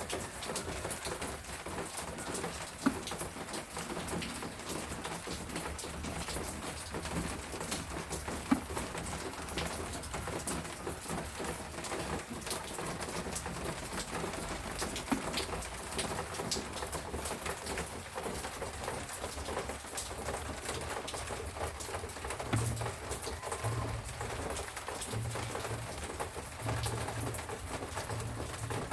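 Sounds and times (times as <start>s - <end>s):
rain drops pattering: 0.0s - 28.9s
dove cooing: 22.5s - 24.7s.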